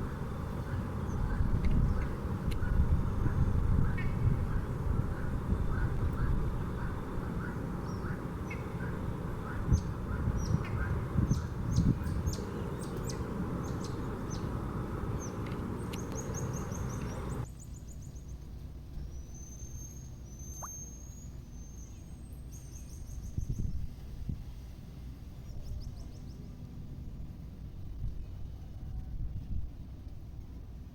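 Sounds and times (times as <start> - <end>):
heavy low rumble: 0.0 - 17.4
short high bird chirps: 19.2 - 22.0.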